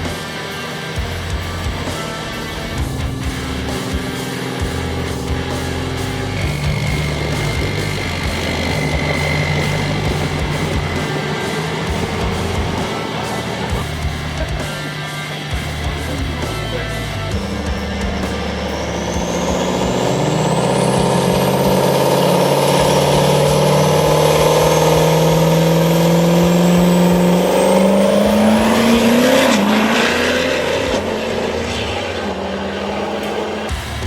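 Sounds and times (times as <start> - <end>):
thin high whine: 0.0 - 34.0
truck engine revving: 0.0 - 34.0.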